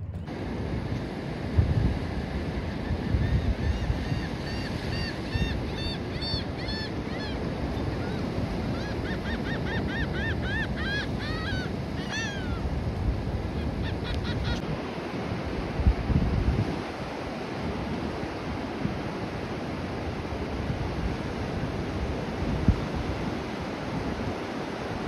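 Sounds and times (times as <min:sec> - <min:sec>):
wind: 0:00.0 - 0:25.0
birds calling: 0:02.7 - 0:12.6, 0:13.5 - 0:14.6.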